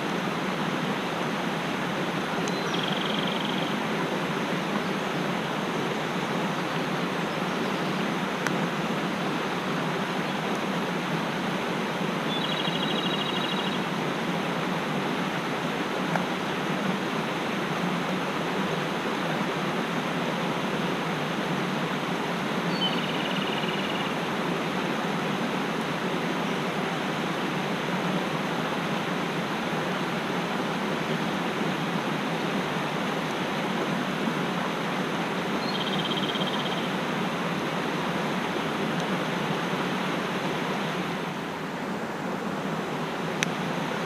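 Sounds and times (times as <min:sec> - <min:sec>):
mountain stream rushing: 0:00.0 - 0:44.0
bird trilling: 0:02.5 - 0:03.7, 0:22.7 - 0:24.1, 0:35.6 - 0:36.9.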